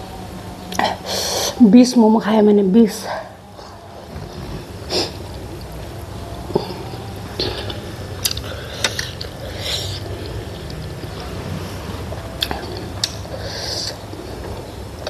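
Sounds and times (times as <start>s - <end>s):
person chewing food: 3.6s - 15.0s.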